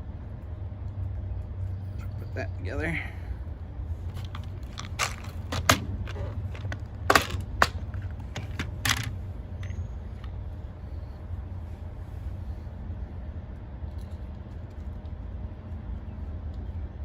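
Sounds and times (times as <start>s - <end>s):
steady low hum: 0.0s - 17.0s
wires clicking and crinkling: 3.6s - 10.6s.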